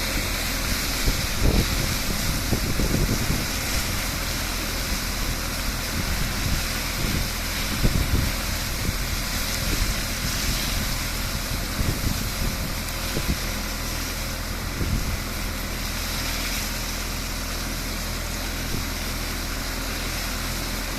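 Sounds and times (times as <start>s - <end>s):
wind noise on microphone: 0.0s - 14.0s, 14.6s - 15.6s, 18.6s - 19.2s
tractor engine running: 0.0s - 20.9s.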